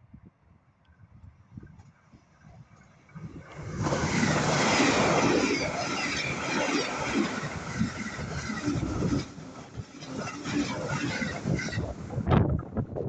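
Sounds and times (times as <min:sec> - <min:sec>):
electric train passing at speed: 0:02.0 - 0:13.0.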